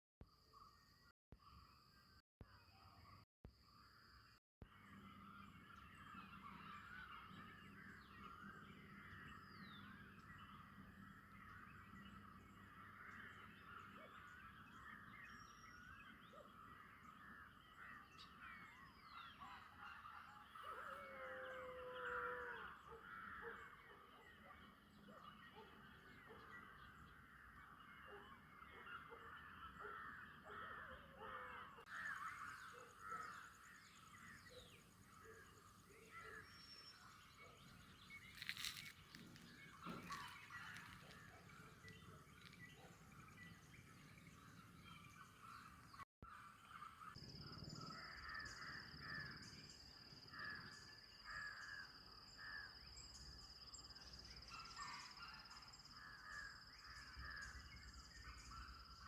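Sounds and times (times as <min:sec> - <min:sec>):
crows cawing: 0:20.7 - 0:23.6, 0:29.8 - 0:33.5.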